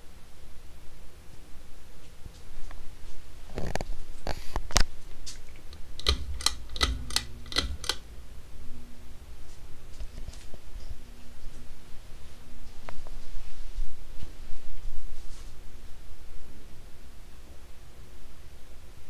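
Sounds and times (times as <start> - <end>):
faint low hum: 0.0 - 19.0
sharp clicks or knocks: 5.6 - 8.3.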